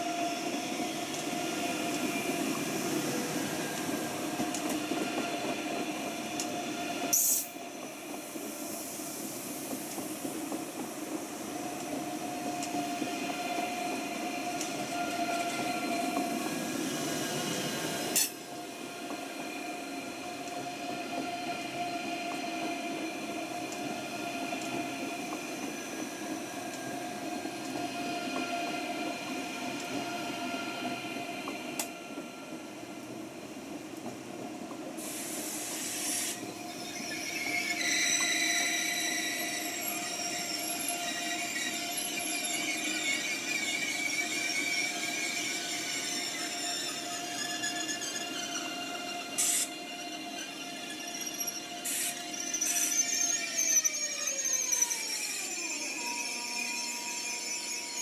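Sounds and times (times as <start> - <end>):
train whining tones: 11.5 - 33.0, 35.0 - 58.0
metallic wheel squeal: 36.1 - 58.0.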